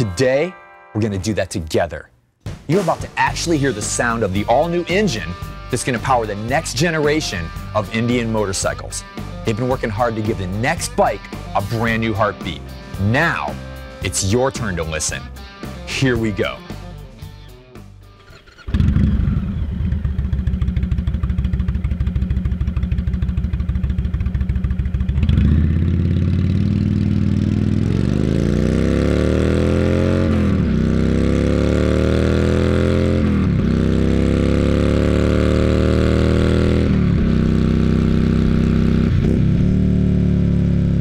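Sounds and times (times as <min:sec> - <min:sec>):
motorcycle engine idling and revving: 0:03.8 - 0:14.2, 0:18.2 - 0:41.0.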